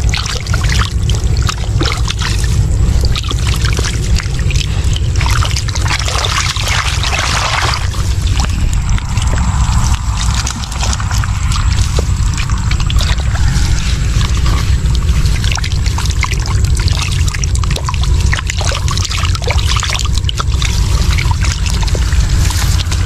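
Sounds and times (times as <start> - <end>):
steady low rumble: 0.0 - 23.0
water splashing and trickling: 0.0 - 23.0.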